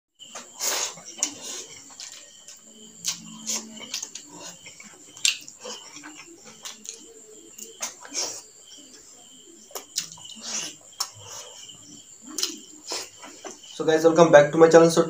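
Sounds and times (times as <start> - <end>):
wet chewing and lip-smacking: 0.8 - 8.2, 9.7 - 11.2, 12.3 - 13.1.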